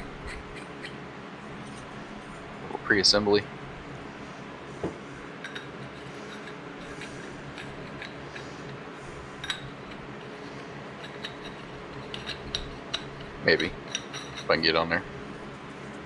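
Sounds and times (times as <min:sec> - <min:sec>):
steady low hum: 0:00.0 - 0:16.0
metal fittings clinking: 0:11.0 - 0:14.6.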